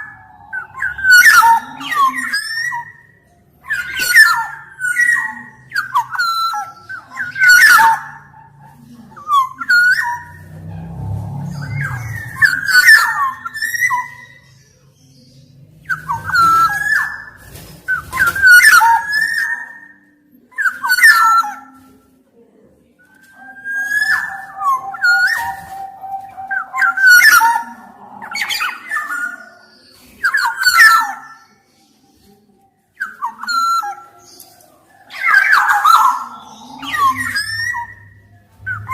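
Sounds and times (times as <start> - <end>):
bird harsh squawking notes: 0.0 - 14.8, 23.1 - 31.6, 35.1 - 38.9
oriole singing fluty whistles: 23.1 - 31.6.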